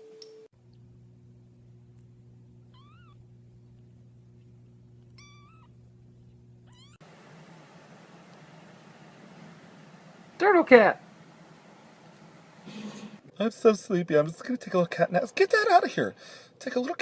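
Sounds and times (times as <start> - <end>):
steady low hum: 0.6 - 13.4
cat meowing: 2.7 - 3.2, 5.2 - 5.7, 6.7 - 7.0.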